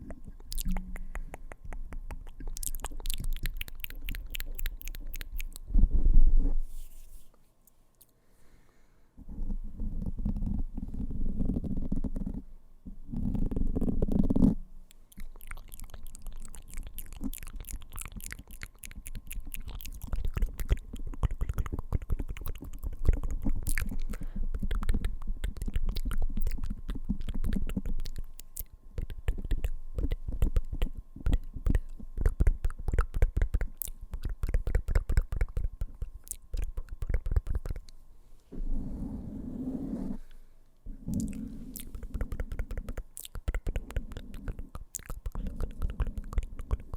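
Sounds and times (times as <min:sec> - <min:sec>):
fingertips tapping on microphone: 0:29.0 - 0:38.0.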